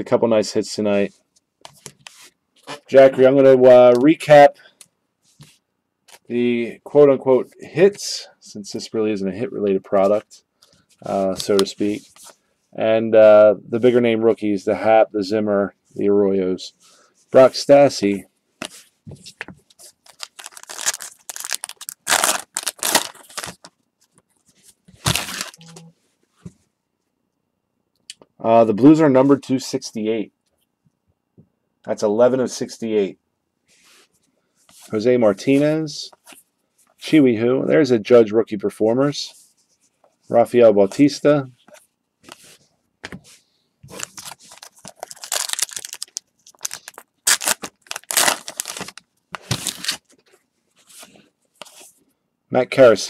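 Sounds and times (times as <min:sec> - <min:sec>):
wrapper tearing and crinkling: 0:20.0 - 0:23.7, 0:25.0 - 0:25.6, 0:44.0 - 0:50.1.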